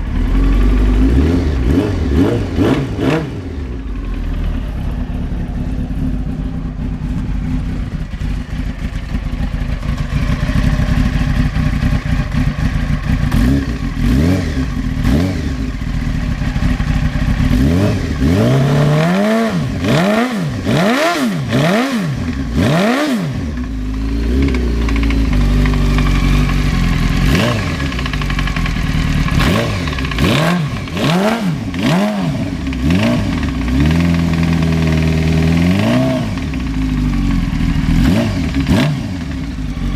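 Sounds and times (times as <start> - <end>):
motorcycle engine revving: 0.0 - 39.9
engine knocking: 6.2 - 17.8, 23.5 - 39.9.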